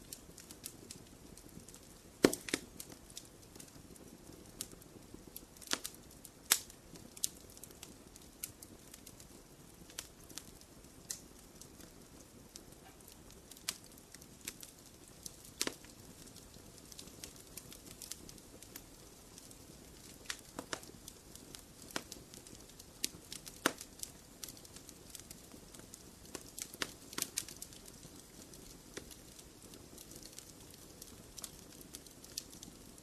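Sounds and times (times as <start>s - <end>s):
wood fire crackling: 0.0s - 33.0s
fire hiss: 1.7s - 11.2s.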